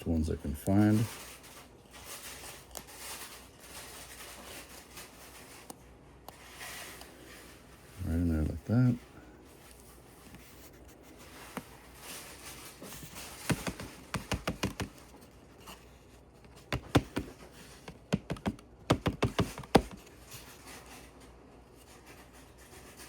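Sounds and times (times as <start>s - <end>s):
plastic clicks and taps: 13.5s - 15.0s, 16.5s - 20.0s.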